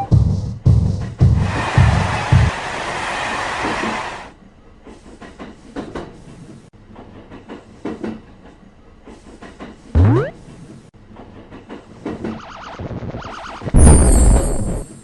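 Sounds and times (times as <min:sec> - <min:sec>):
train rushing past: 0:01.3 - 0:04.3.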